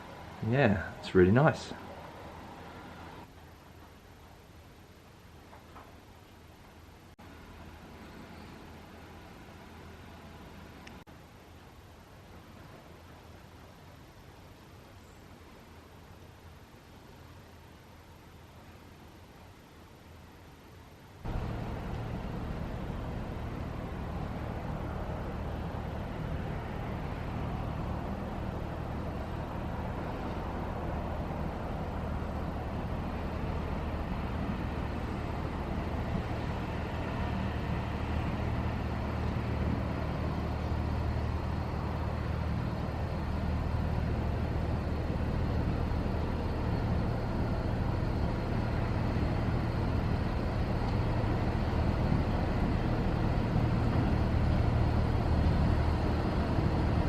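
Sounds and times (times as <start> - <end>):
diesel engine humming: 0.0 - 3.3, 21.3 - 57.0.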